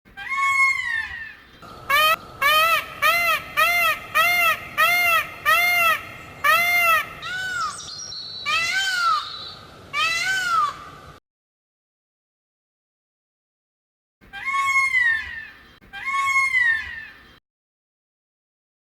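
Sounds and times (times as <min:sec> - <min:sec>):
peacock calling: 0:00.1 - 0:11.2, 0:14.3 - 0:17.4.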